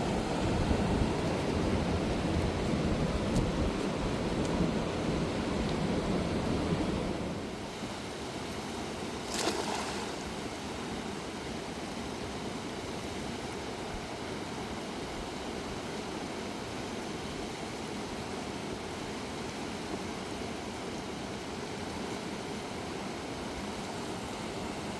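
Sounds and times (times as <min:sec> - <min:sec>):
fast-flowing river rushing: 0:00.0 - 0:07.5.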